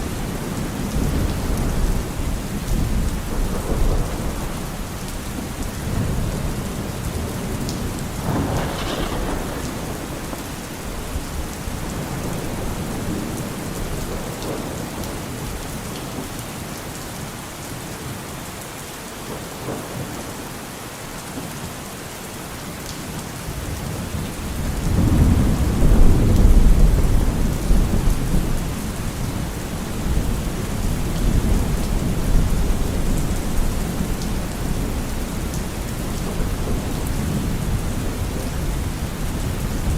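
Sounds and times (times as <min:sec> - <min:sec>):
low thunder rumble: 0:00.0 - 0:15.6, 0:23.8 - 0:39.9
rain falling: 0:00.0 - 0:39.9
sharp thunder crack: 0:08.1 - 0:13.3.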